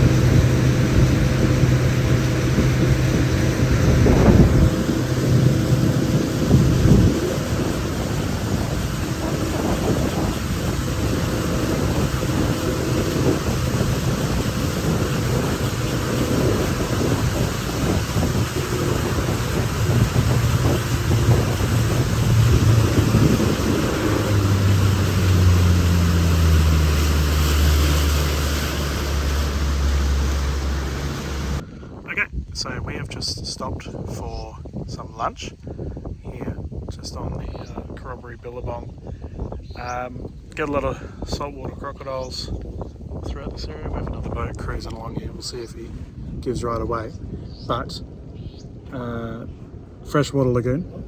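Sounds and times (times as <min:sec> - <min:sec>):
outboard motor running: 0:00.0 - 0:31.9
wind noise on microphone: 0:00.0 - 0:51.0.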